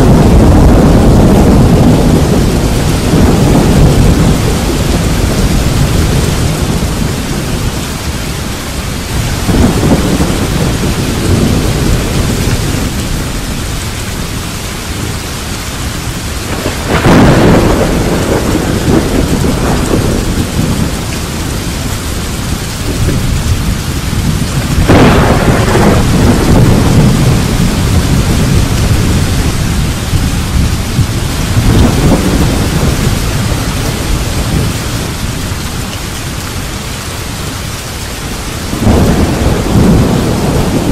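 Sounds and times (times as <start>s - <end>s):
steady rain: 0.0s - 40.9s
thunder rumbling: 0.0s - 40.9s.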